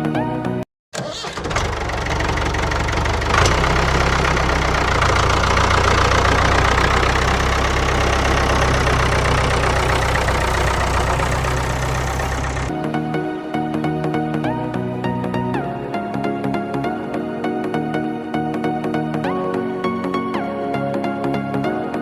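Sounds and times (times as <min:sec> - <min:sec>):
small diesel engine knocking: 0:01.3 - 0:12.7.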